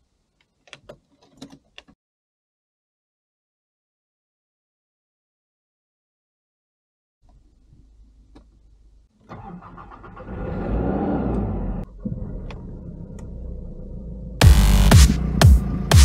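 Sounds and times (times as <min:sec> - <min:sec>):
car engine revving and idling: 0:09.4 - 0:16.0.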